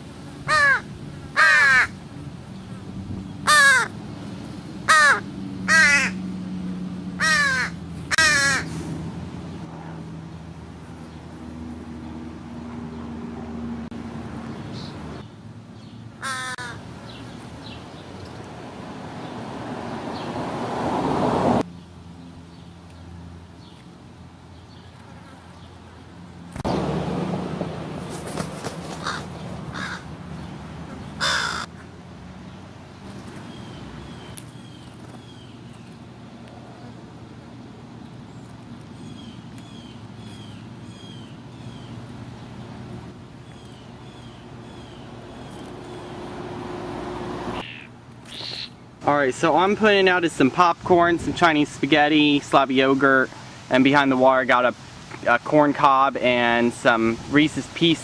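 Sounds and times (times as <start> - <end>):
crow cawing: 0.5 - 2.0, 3.4 - 3.9, 4.9 - 6.2, 7.2 - 8.7, 16.2 - 16.8, 29.0 - 30.1, 31.2 - 31.7
small bird chirping: 47.6 - 48.8.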